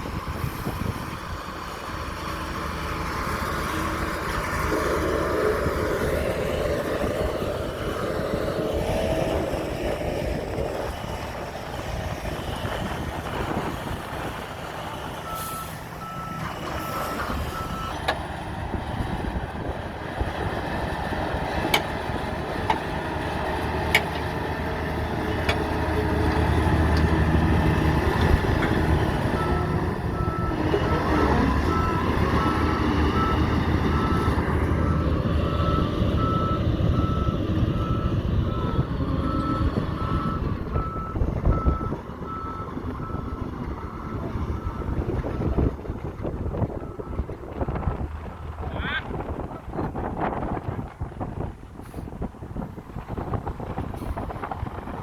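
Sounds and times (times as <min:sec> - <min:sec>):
diesel truck running: 0:00.0 - 0:55.0
reversing alarm beeping: 0:29.2 - 0:45.6.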